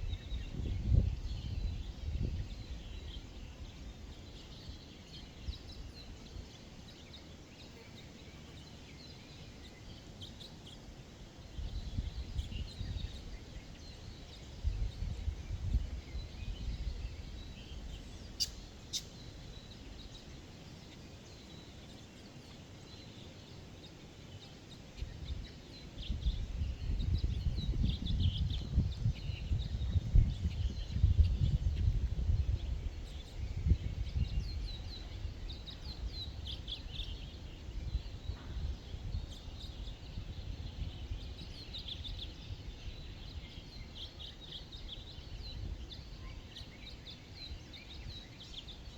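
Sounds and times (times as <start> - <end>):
forest birds chirping: 0.0 - 48.9
low rumbling gusts: 25.0 - 43.5.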